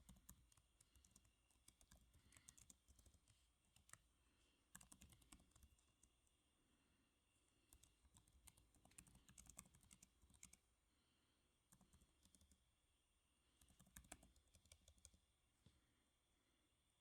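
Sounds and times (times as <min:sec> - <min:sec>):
typing on computer keyboard: 0:00.0 - 0:04.0, 0:04.7 - 0:06.2, 0:07.7 - 0:10.6, 0:11.8 - 0:12.6, 0:13.6 - 0:15.2.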